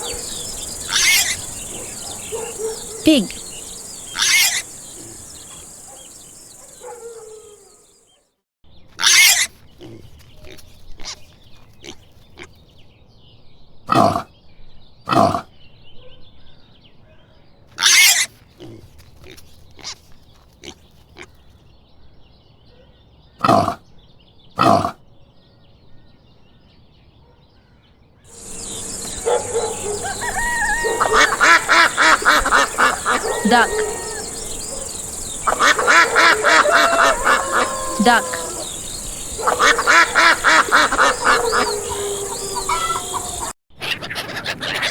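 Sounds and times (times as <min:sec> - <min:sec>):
pig squeals: 0:00.0 - 0:07.7, 0:09.0 - 0:09.5, 0:17.8 - 0:18.4, 0:28.4 - 0:44.9
pigs grunting: 0:00.0 - 0:07.8, 0:13.9 - 0:14.3, 0:15.1 - 0:15.5, 0:23.4 - 0:23.8, 0:24.6 - 0:25.0, 0:28.4 - 0:43.5.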